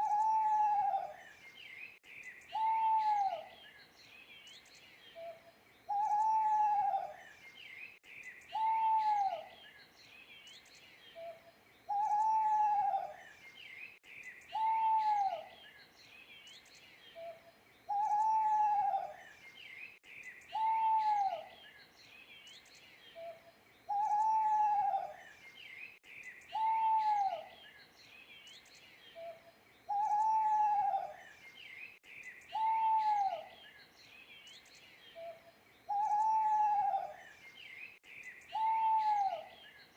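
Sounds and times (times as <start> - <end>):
owl hooting: 0.0 - 1.2, 2.5 - 3.5, 5.9 - 7.2, 8.5 - 9.5, 11.2 - 13.2, 14.5 - 15.5, 17.2 - 19.2, 20.5 - 21.5, 23.2 - 25.2, 26.5 - 27.5, 29.2 - 31.2, 32.5 - 33.6, 35.2 - 37.2, 38.5 - 39.6
small birds chirping: 0.0 - 39.9.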